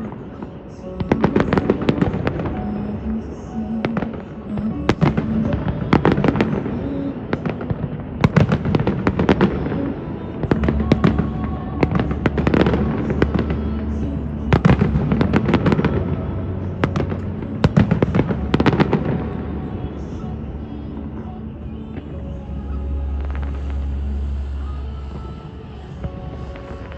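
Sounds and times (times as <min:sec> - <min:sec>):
continuous rumble of fireworks display: 0:00.0 - 0:26.9
fireworks exploding: 0:00.0 - 0:26.9.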